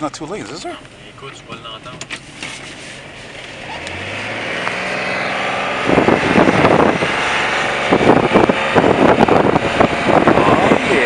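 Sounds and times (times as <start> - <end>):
diesel bus engine pulling away: 3.0 - 11.0.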